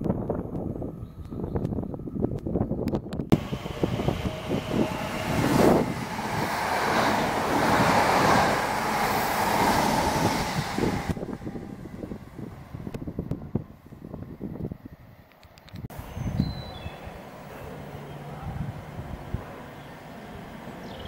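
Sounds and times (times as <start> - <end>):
wind buffeting microphone: 0.0 - 17.2, 18.2 - 21.0
train wheels rushing on rail: 3.3 - 13.6.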